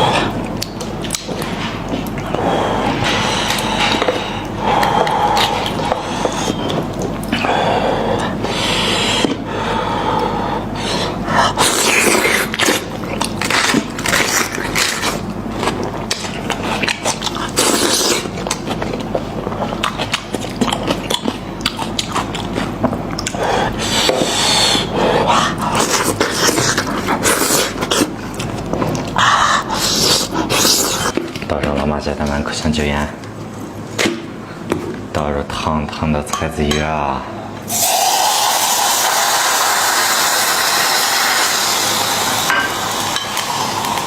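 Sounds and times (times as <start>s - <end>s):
person chewing meat: 0.0s - 31.5s.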